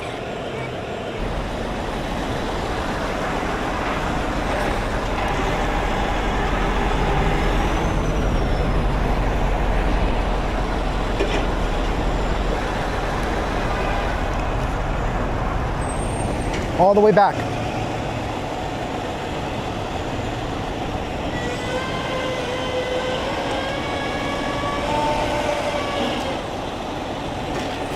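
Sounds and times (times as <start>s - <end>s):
truck diesel engine running: 0.0s - 21.2s.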